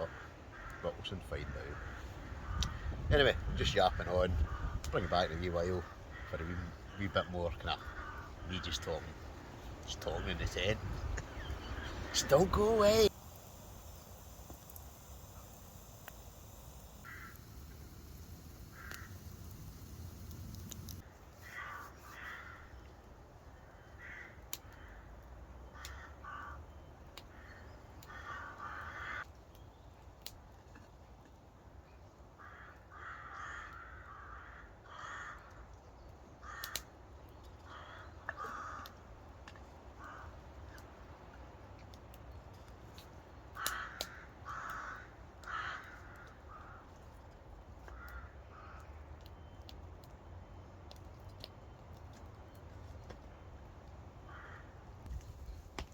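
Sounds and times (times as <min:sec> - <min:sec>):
birds calling harshly: 0:00.0 - 0:22.8.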